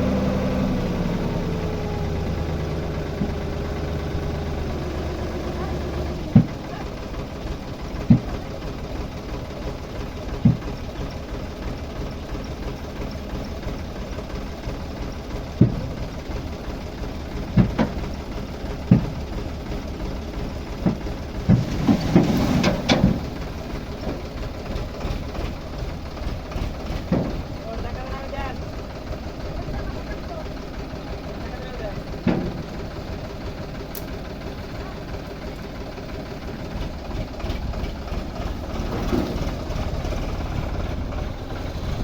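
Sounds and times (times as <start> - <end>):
tractor diesel engine running: 0.0 - 42.0
sharp knocks or clunks: 8.0 - 8.3, 15.6 - 16.0, 17.6 - 18.0, 18.8 - 19.2, 32.2 - 32.8.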